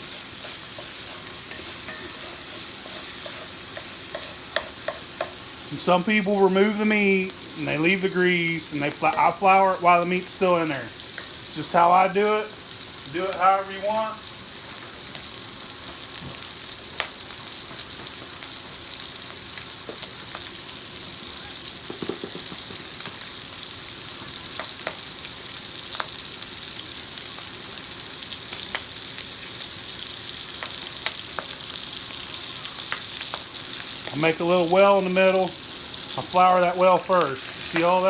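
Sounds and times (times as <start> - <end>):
sausage sizzling in skillet: 0.0 - 38.0
utensil scraping pan: 0.1 - 5.4.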